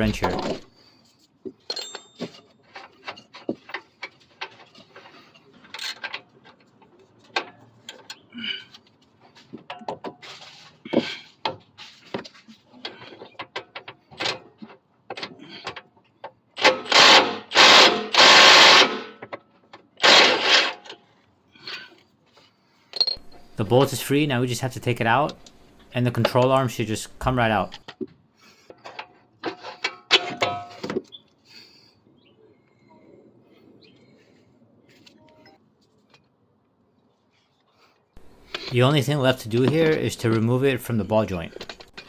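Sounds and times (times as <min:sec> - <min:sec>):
impact wrench bursts: 0:23.2 - 0:27.8, 0:38.2 - 0:40.0.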